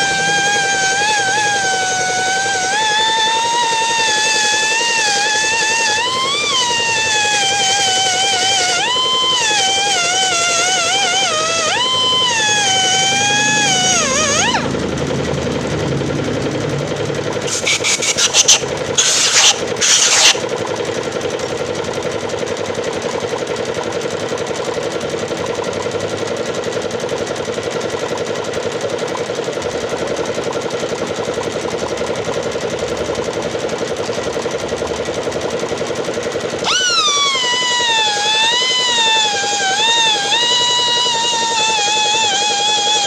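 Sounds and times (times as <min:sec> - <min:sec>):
air grinder buzzing: 0:00.0 - 0:24.0, 0:33.2 - 0:43.0.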